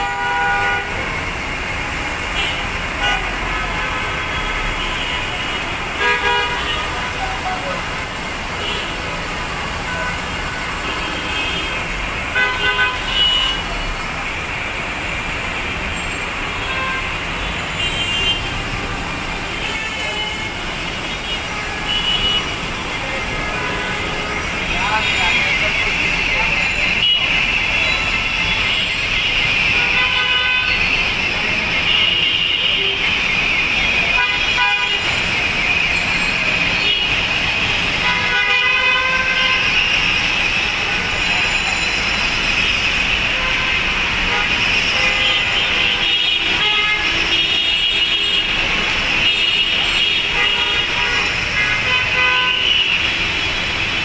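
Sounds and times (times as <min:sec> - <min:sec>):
city road traffic: 0:00.0 - 0:54.0
vehicle horn toots: 0:02.4 - 0:07.4, 0:26.8 - 0:30.9, 0:34.0 - 0:35.2, 0:38.0 - 0:39.8.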